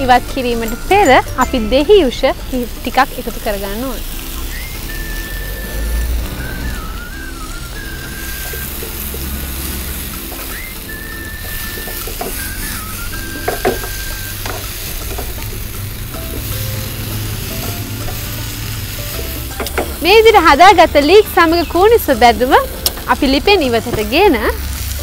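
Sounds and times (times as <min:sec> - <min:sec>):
food sizzling in a pan: 0:00.0 - 0:25.0.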